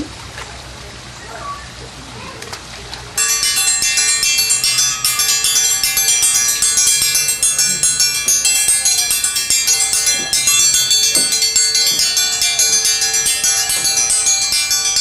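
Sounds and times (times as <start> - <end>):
bells jingling: 3.2 - 15.0.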